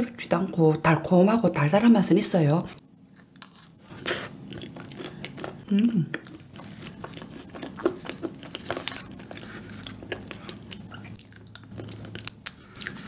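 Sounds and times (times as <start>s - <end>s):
wet chewing clicks and smacks: 4.4s - 13.0s.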